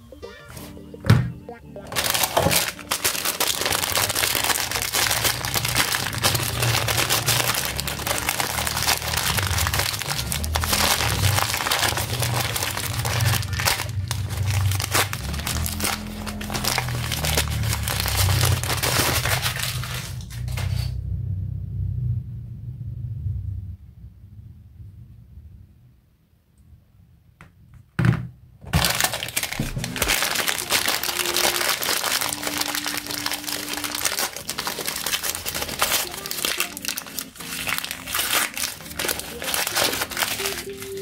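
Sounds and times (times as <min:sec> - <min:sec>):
background music: 0:00.0 - 0:20.0, 0:29.3 - 0:41.0
plastic packaging crinkling: 0:01.9 - 0:20.9, 0:28.7 - 0:41.0.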